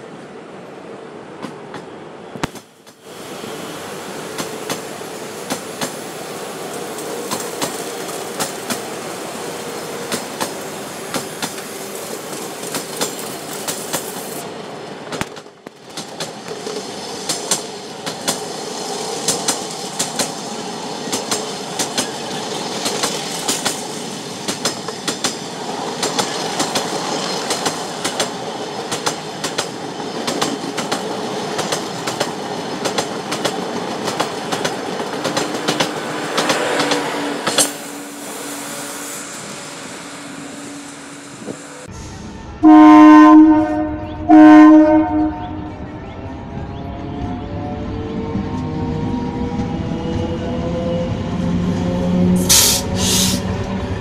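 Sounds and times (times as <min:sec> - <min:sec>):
steel wheels rumbling on rail: 0:00.1 - 0:54.0
rail joint clicks: 0:01.3 - 0:03.1, 0:04.3 - 0:09.1, 0:09.9 - 0:38.0, 0:51.7 - 0:54.0.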